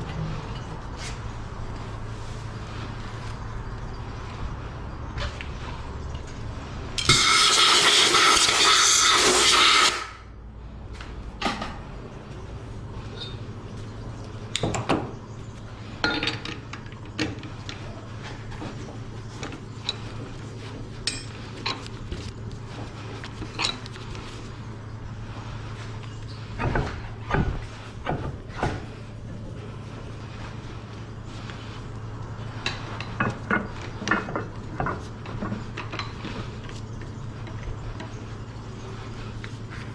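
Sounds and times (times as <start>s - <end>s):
steady low hum: 0.0s - 39.9s
tools and wood knocking: 32.6s - 38.1s.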